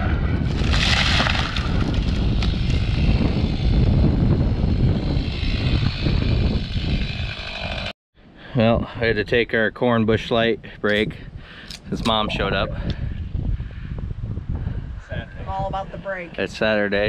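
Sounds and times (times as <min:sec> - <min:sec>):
chainsaw running: 0:02.0 - 0:07.9.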